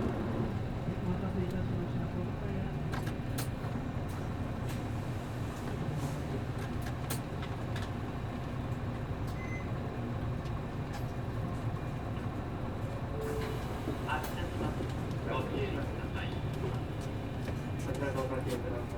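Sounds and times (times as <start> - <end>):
bus diesel engine droning: 0.0 - 18.9
rattles and clicks in cabin: 0.0 - 18.9.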